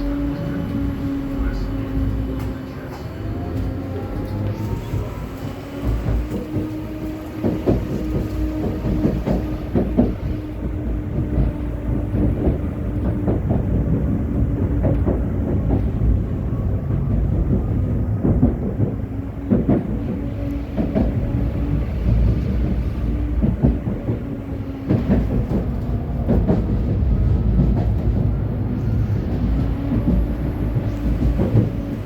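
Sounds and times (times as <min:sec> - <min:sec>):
tram motor hum: 0:00.0 - 0:32.0
tram rumbling along track: 0:00.0 - 0:32.0.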